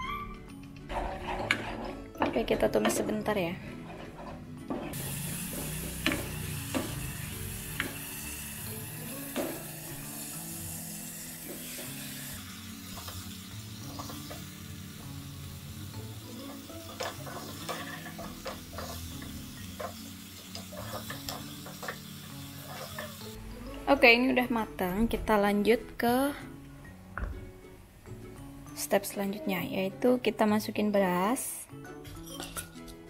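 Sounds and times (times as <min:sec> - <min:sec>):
spatula scraping and tapping pan: 0:00.8 - 0:03.1, 0:16.5 - 0:23.3
paste sizzling in a pan: 0:04.9 - 0:23.4.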